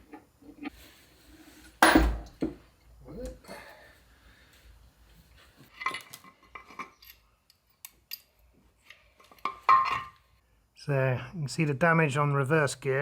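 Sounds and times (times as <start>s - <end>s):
steel parts clinking: 5.7s - 10.2s.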